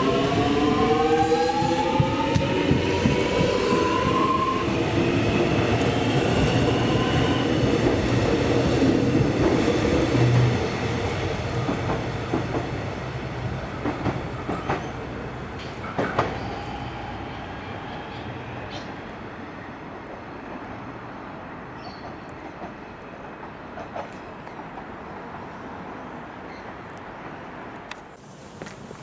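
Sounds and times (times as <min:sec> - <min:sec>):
train wheel rumble: 0:00.0 - 0:19.0
wheels clicking over rail joints: 0:07.7 - 0:16.6.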